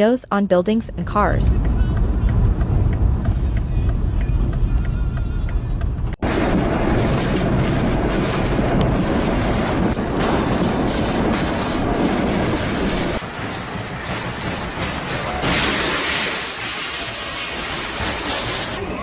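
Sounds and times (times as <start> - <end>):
storm wind on microphone: 1.2 - 15.4.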